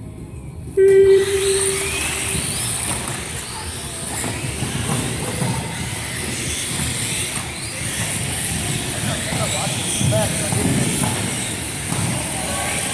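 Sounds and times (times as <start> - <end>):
steady beep: 0.8 - 2.6
rc car motors whining: 0.8 - 12.9.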